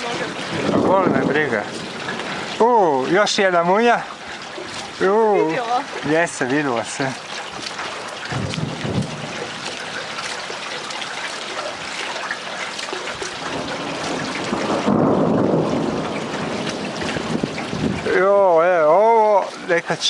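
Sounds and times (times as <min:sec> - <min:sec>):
thunder rumbling: 0:00.0 - 0:03.4, 0:08.3 - 0:10.3, 0:13.1 - 0:18.2
rain falling: 0:00.0 - 0:20.0.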